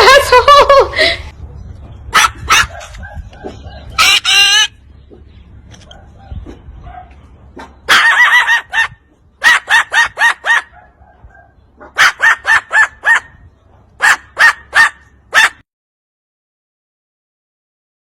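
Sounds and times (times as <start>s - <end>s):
parrot squawking: 2.1s - 4.8s, 7.9s - 10.8s, 11.8s - 13.4s.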